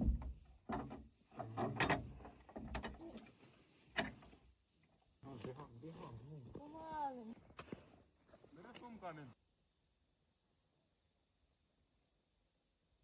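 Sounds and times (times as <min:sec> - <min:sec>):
knocks and clatters: 0:00.0 - 0:03.0
crickets chirping: 0:00.0 - 0:13.0.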